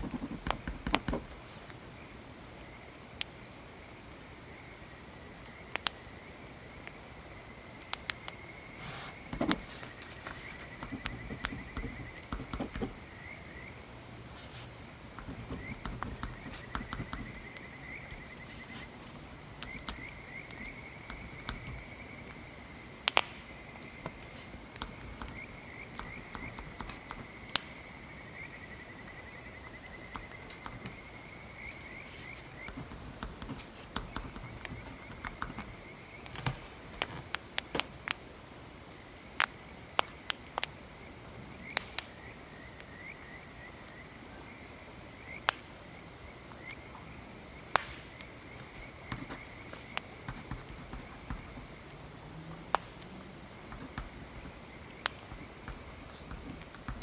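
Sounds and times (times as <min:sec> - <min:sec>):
night insects or frogs trilling: 0:00.0 - 0:37.9, 0:38.6 - 0:57.0
campfire crackling and popping: 0:05.4 - 0:07.0, 0:07.8 - 0:08.4, 0:09.1 - 0:42.4, 0:45.3 - 0:45.9, 0:46.5 - 0:57.0.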